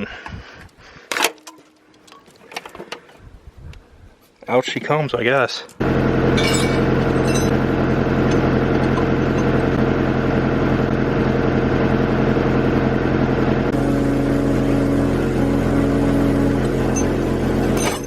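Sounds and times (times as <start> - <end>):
skid steer engine running: 5.8 - 18.0
high steady tone: 13.7 - 18.0.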